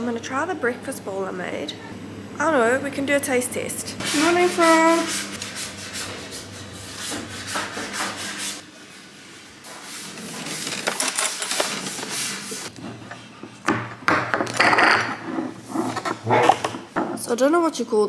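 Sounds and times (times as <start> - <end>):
food container rubbing and scraping: 4.0 - 12.7, 14.8 - 17.3.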